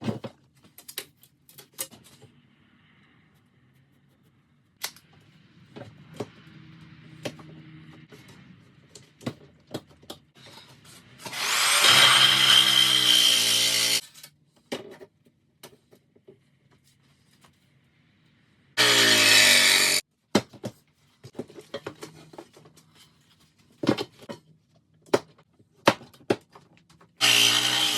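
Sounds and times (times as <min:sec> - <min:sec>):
power drill running: 0:11.3 - 0:14.0, 0:18.8 - 0:20.0, 0:27.2 - 0:27.9.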